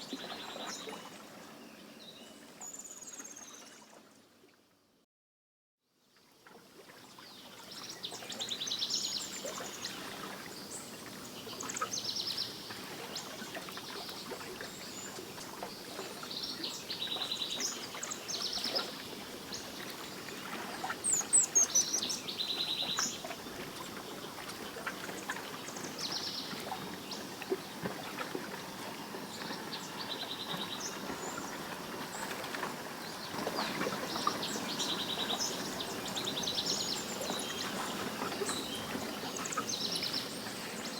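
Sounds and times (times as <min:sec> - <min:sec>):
songbirds trilling: 0:21.0 - 0:40.9.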